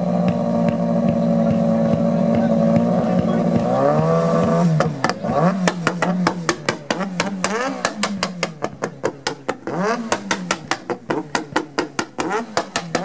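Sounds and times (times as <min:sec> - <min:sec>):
motorcycle engine revving: 0:00.0 - 0:13.0
fast sharp knocks: 0:04.4 - 0:13.0.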